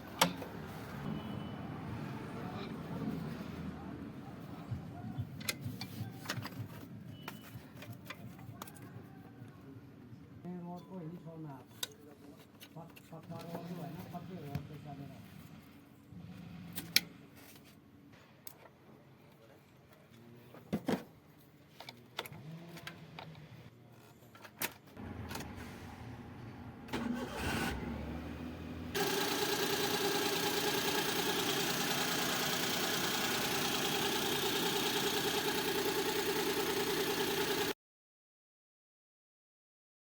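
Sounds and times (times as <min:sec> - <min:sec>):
engine starting and running: 0:25.0 - 0:37.8.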